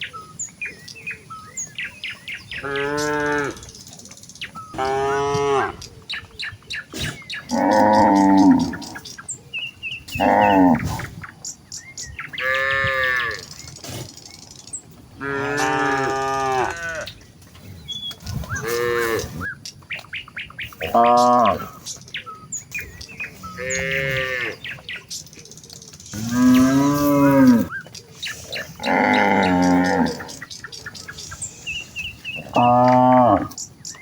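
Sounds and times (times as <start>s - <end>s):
cows mooing: 2.6s - 3.7s, 4.7s - 5.9s, 7.5s - 9.1s, 10.1s - 11.0s, 12.4s - 13.5s, 15.2s - 17.2s, 18.4s - 19.4s, 20.8s - 21.7s, 23.4s - 24.6s, 26.1s - 27.8s, 28.6s - 30.5s, 32.3s - 33.6s.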